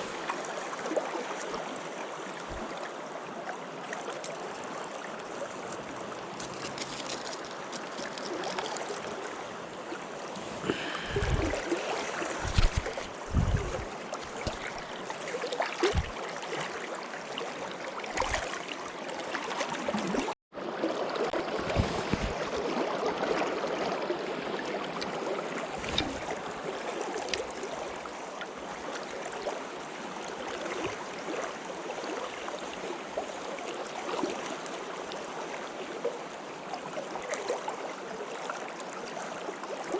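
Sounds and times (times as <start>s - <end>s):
stream rushing: 0.0s - 31.4s
low thumps: 12.4s - 14.4s.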